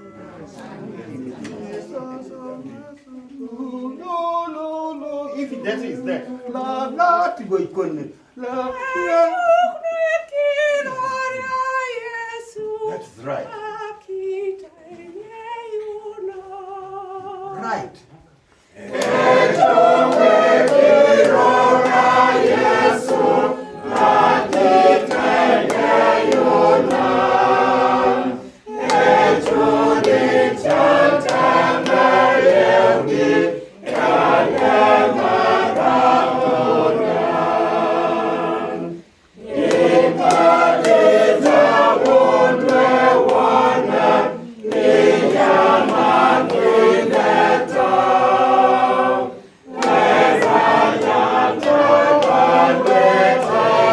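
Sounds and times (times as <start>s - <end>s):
choir singing unaccompanied: 0.0s - 7.6s, 18.7s - 53.9s.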